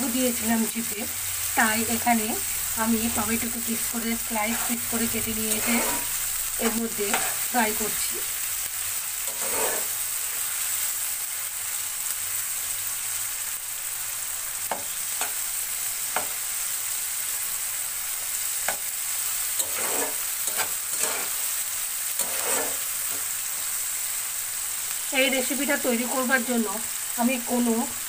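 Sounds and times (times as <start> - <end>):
onions sizzling in oil: 0.0 - 28.0
spatula scraping and knocking pan: 4.4 - 7.5, 9.3 - 10.0, 16.1 - 16.4, 19.6 - 21.4, 22.2 - 23.3.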